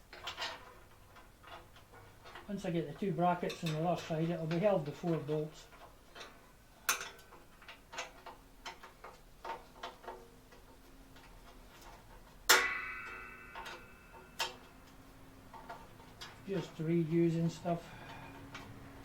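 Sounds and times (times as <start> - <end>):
metal struck with ringing clank: 12.5 - 14.4.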